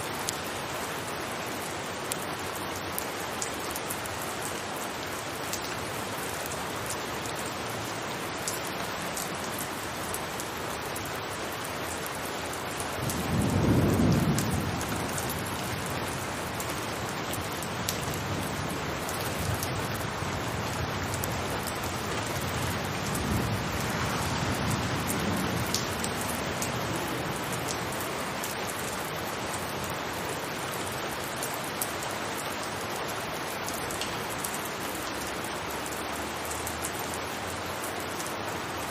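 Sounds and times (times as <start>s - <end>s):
rain on a rooftop: 0.0s - 38.9s
sharp raindrop ticks: 0.1s - 0.6s, 1.6s - 38.9s
thunder rumbling: 13.0s - 17.1s.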